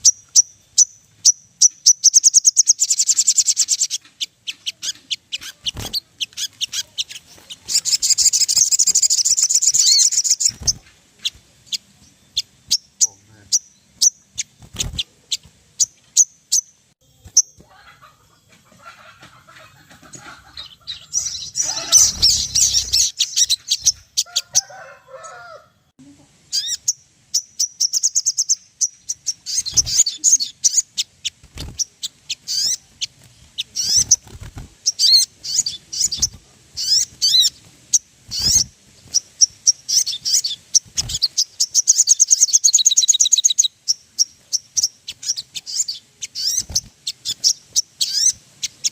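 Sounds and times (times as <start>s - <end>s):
bird chirps and trills: 0.0s - 25.4s, 26.4s - 48.9s.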